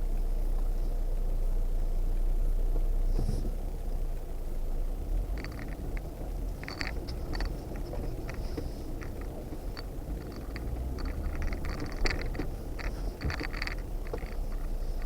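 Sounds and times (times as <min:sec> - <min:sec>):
vehicle engine rumbling: 0:00.0 - 0:15.0
sharp clicks and scrapes: 0:05.3 - 0:15.0.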